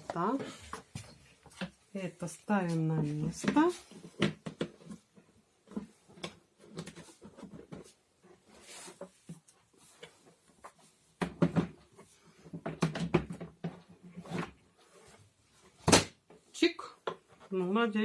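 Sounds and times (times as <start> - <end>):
plastic parts clicking and knocking: 12.5 - 13.9.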